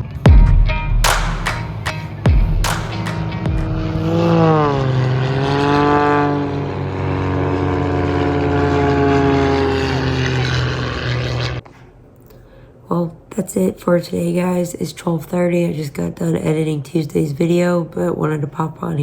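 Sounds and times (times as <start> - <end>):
low rumble: 0.0 - 5.0
aircraft engine flying past: 2.9 - 11.6.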